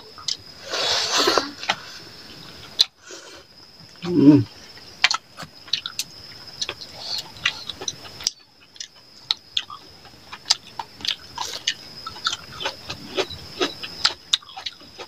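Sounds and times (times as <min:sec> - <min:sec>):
short low voice-like sound: 0:04.0 - 0:04.5
wet chewing and lip-smacking: 0:05.0 - 0:15.0.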